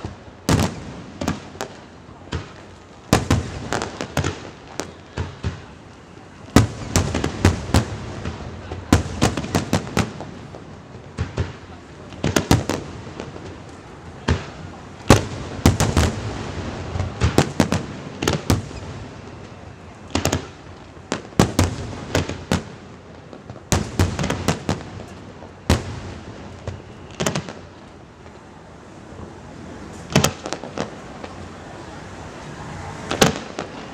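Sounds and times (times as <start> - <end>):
fireworks bursting with bangs: 0.0 - 33.9
fireworks crackling: 0.0 - 33.9.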